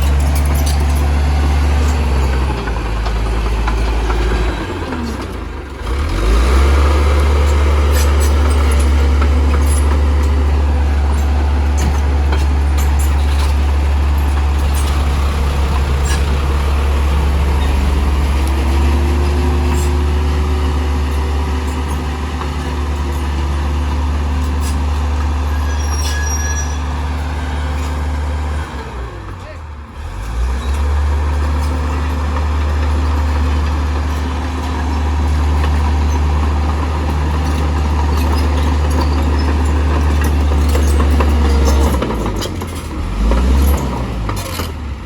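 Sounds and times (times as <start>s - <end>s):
diesel engine rumbling: 0.0s - 45.0s
sharp clicks and knocks: 7.4s - 25.4s.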